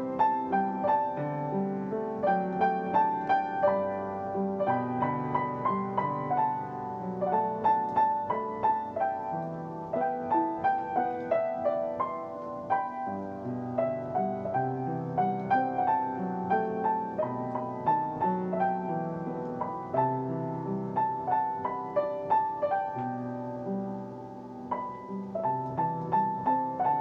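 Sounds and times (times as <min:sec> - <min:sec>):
gentle solo piano: 0:00.0 - 0:27.0.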